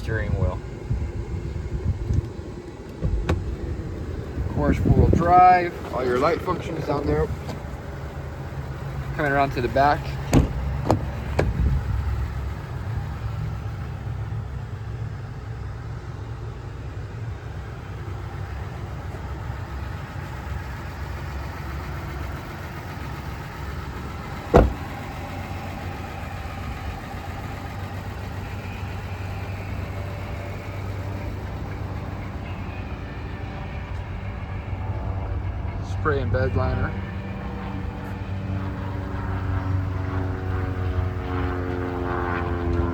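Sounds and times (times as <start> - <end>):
diesel engine idling: 0.0 - 42.9
loud clunk: 10.3 - 11.6, 24.5 - 24.9.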